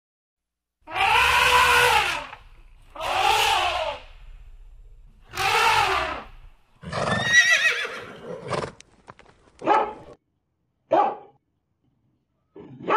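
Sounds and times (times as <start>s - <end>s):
horse whinnying: 0.8s - 4.2s, 5.2s - 8.8s
harsh animal call: 0.8s - 4.5s, 5.2s - 8.8s
dog barks: 9.6s - 10.2s, 10.9s - 11.4s, 12.6s - 12.9s.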